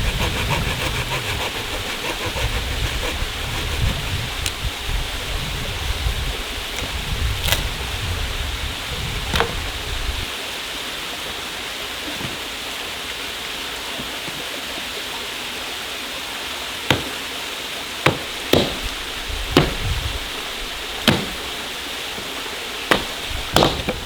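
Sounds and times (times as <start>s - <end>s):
waterfall rushing: 15.8s - 24.0s
firewood chopping knocks: 16.9s - 17.2s, 18.0s - 20.4s, 21.0s - 22.3s, 22.9s - 24.0s.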